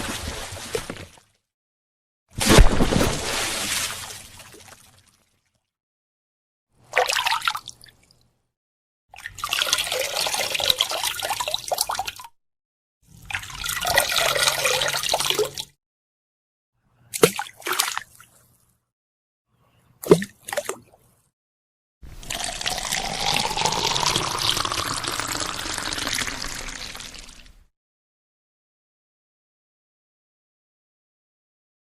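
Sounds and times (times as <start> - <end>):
water drips and splashes: 9.2 - 12.4, 17.1 - 18.7
water pouring: 22.1 - 27.7.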